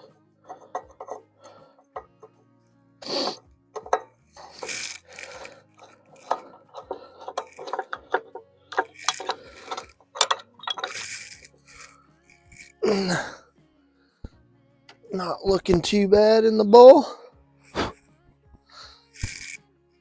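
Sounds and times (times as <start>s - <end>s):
light metal clinks and clicks: 5.8s - 11.2s.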